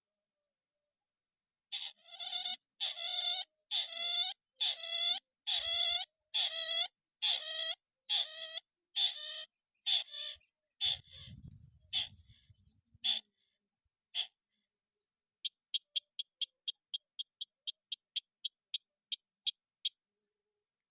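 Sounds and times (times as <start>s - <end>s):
crake calling: 1.7s - 13.4s, 14.1s - 14.4s.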